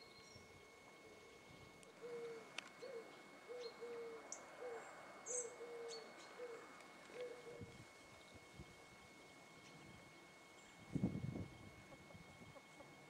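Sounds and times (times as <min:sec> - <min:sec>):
bird hooting: 0:00.0 - 0:08.3
small birds chirping: 0:00.0 - 0:13.0.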